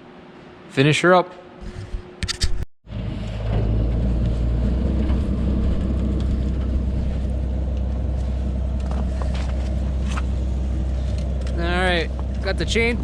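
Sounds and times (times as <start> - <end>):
engine droning: 2.9 - 13.0.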